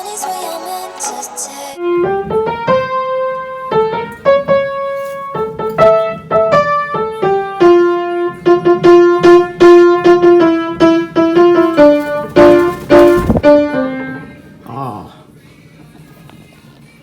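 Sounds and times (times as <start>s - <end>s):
piano melody with chords: 1.7s - 14.6s.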